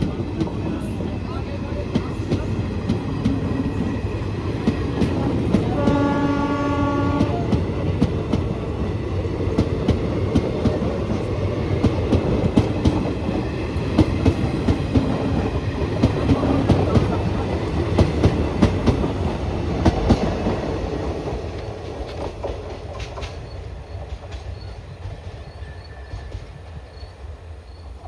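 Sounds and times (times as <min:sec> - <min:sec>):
train wheels clacking: 0:00.0 - 0:27.2
train horn: 0:05.6 - 0:07.6.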